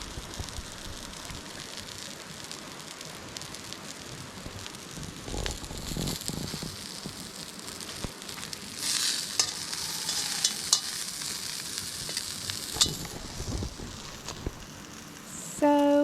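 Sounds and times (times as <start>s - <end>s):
food sizzling in a pan: 0.0s - 16.0s
sharp pops: 4.4s - 15.2s.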